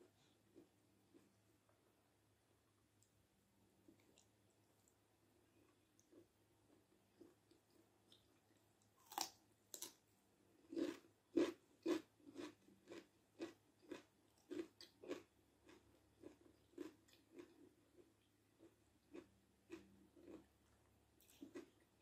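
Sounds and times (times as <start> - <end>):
crunchy bites: 9.0 - 10.0
steady chewing: 10.7 - 20.5, 21.2 - 22.0.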